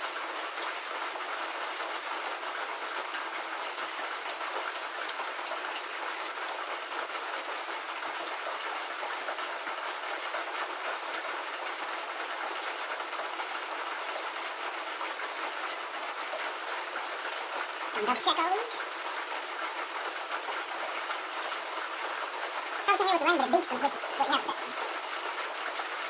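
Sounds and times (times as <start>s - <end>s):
rain on a roof: 0.0s - 26.0s.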